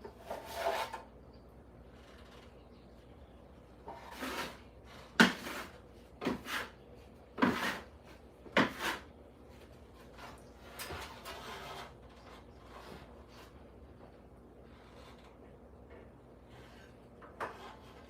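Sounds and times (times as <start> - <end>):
rubbing strokes on hard surface: 3.9 - 6.8, 7.4 - 13.6.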